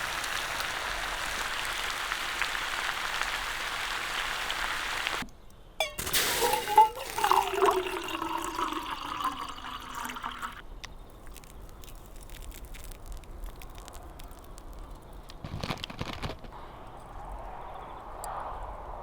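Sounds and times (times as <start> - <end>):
liquid pouring into container: 5.8 - 14.8.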